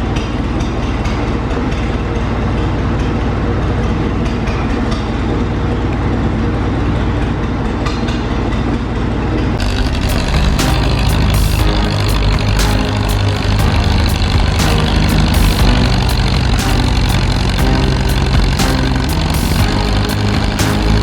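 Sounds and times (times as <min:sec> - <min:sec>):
tractor engine running: 0:09.6 - 0:21.0.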